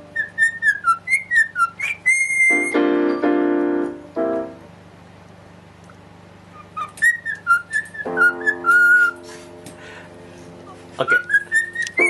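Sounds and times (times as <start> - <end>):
cockatiel whistling: 0.0 - 2.8, 6.5 - 9.2, 11.0 - 12.0
piano notes: 2.5 - 5.1, 6.7 - 12.0.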